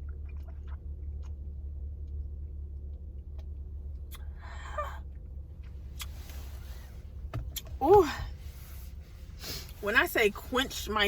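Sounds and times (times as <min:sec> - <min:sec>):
car engine idling: 0:01.6 - 0:11.0
short rustle: 0:06.1 - 0:10.8.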